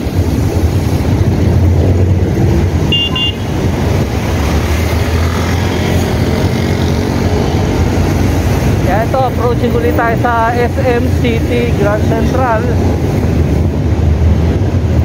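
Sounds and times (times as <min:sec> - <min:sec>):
heavy traffic rumble: 0:00.0 - 0:15.0
truck and bus passing: 0:00.0 - 0:15.0
horn double beep: 0:02.9 - 0:03.5.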